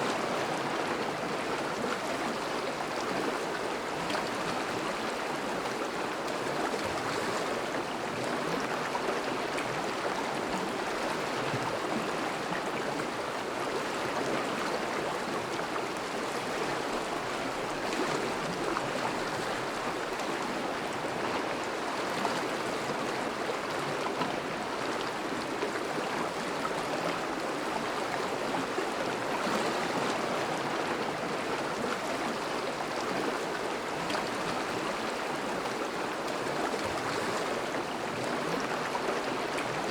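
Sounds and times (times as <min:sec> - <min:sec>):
river water rushing and babbling: 0:00.0 - 0:39.9.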